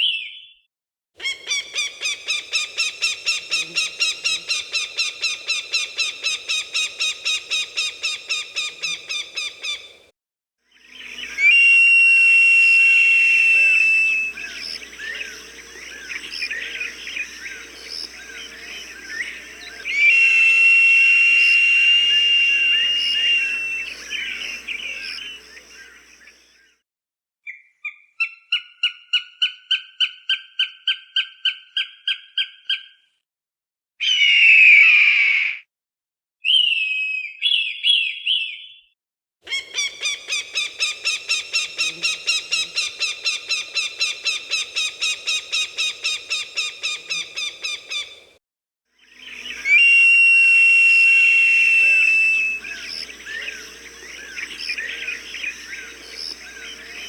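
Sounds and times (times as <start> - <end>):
background chirping: 1.2 - 10.0, 13.1 - 26.7, 39.5 - 48.4, 49.0 - 57.0
falcon calls: 13.3 - 25.6, 39.5 - 48.2, 49.5 - 57.0
falcon harsh scream: 19.9 - 24.6, 49.6 - 53.4.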